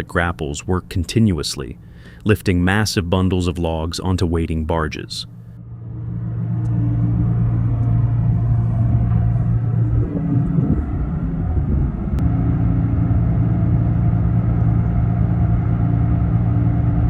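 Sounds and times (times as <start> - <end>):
heavy diesel engine running: 5.2 - 17.0.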